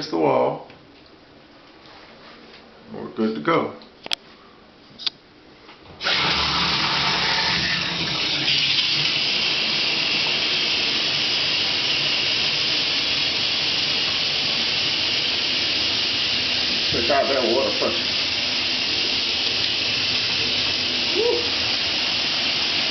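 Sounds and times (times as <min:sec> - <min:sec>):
shower head spraying water: 0:06.0 - 0:22.9.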